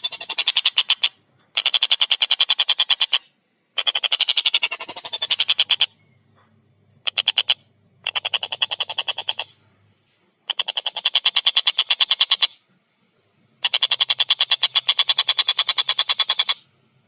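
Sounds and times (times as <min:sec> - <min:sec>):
kingfisher cackling call: 0:00.0 - 0:06.0, 0:07.0 - 0:09.5, 0:10.5 - 0:12.6, 0:13.6 - 0:16.6.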